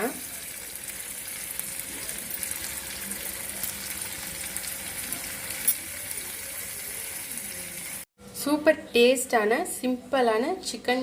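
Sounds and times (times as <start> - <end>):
food sizzling in a pan: 0.0 - 8.1.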